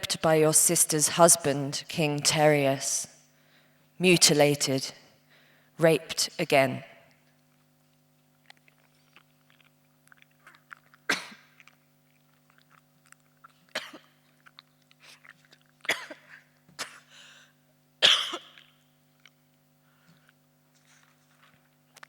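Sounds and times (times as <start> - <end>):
faint steady hum: 0.0 - 22.0
person coughing harshly: 11.1 - 11.6, 13.7 - 14.2, 15.8 - 17.2, 18.0 - 18.7.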